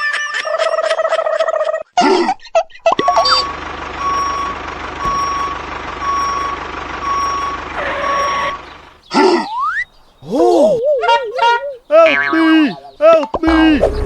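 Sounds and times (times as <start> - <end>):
engine humming: 2.8 - 14.0
vehicle reversing alarm beeping: 3.0 - 10.0, 13.5 - 14.0.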